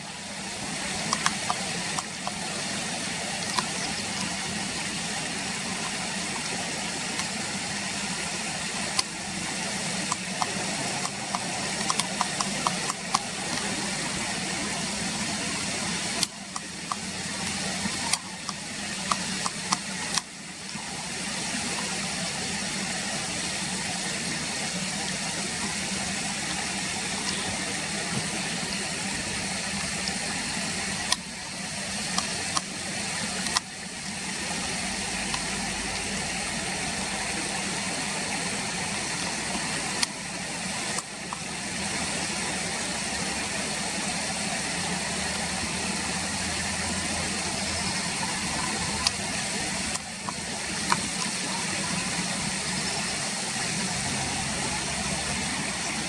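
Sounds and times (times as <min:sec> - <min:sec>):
sharp clicks: 0:00.8 - 0:02.5, 0:10.0 - 0:13.9, 0:15.5 - 0:20.3, 0:32.0 - 0:33.8.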